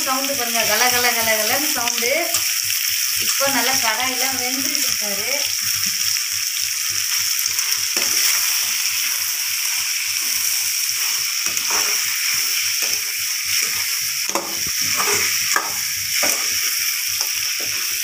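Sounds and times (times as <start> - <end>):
food sizzling in hot oil: 0.0 - 18.0
metal spatula scraping a pan: 7.6 - 9.3, 10.2 - 18.0.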